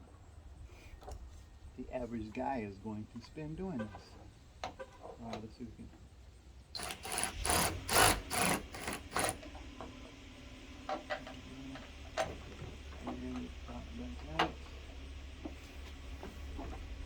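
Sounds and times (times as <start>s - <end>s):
metal and plastic scraping: 6.8s - 9.6s
light clicks and knocks: 14.2s - 16.9s.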